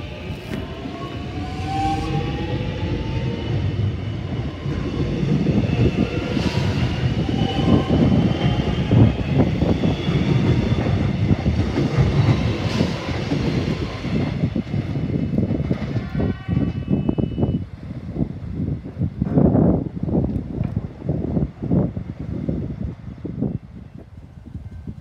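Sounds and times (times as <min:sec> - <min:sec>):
electric train passing: 0:00.0 - 0:18.8.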